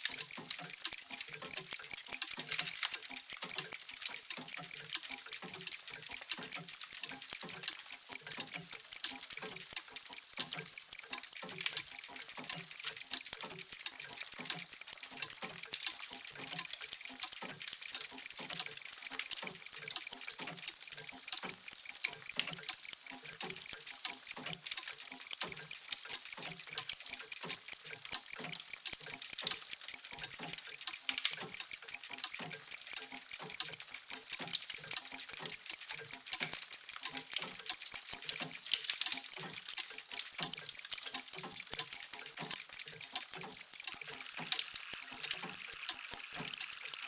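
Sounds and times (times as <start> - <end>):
clocks ticking: 0.0 - 47.0.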